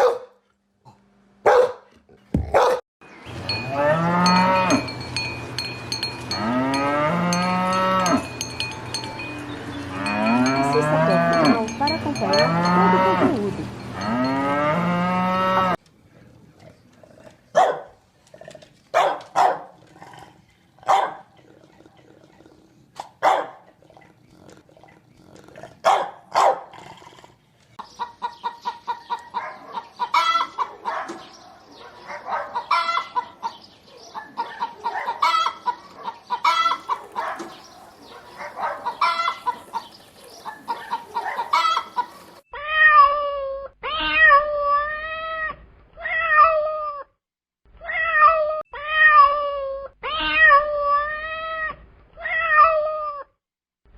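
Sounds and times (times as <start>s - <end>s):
chickens clucking: 27.8s - 31.2s, 32.3s - 42.4s.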